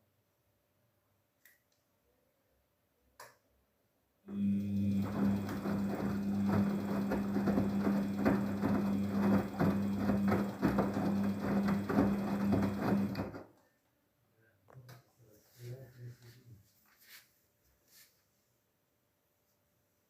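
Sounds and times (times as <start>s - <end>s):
washing machine motor humming: 4.3s - 13.5s
water and laundry swishing: 4.5s - 13.4s.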